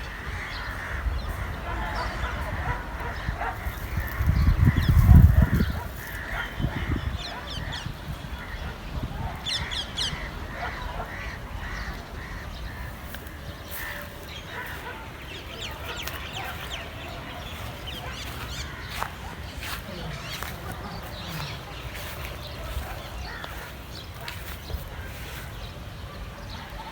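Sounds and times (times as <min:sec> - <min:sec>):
birds chirping: 0:00.0 - 0:26.9.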